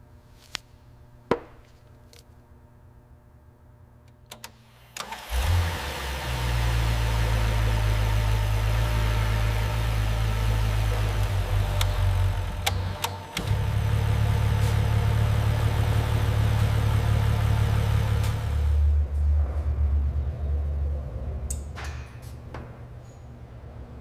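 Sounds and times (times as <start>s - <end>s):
car engine starting and idling: 5.0s - 21.8s.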